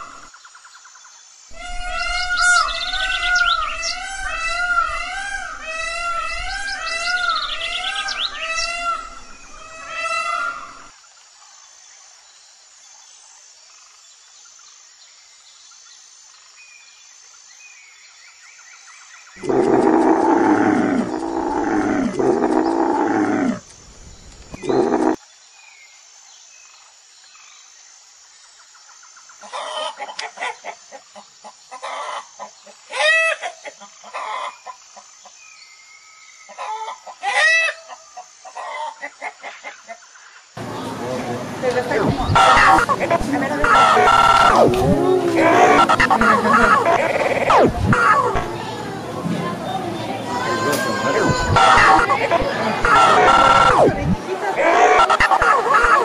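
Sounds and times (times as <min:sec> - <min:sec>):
hen clucking: 0:19.4 - 0:23.6, 0:24.6 - 0:25.2, 0:40.6 - 0:48.8, 0:50.2 - 0:56.0
rooster clucking: 0:19.4 - 0:23.6, 0:40.6 - 0:49.6, 0:50.2 - 0:56.0
hippopotamus grunting: 0:19.4 - 0:23.7, 0:24.5 - 0:25.2, 0:41.6 - 0:49.0, 0:50.6 - 0:56.0.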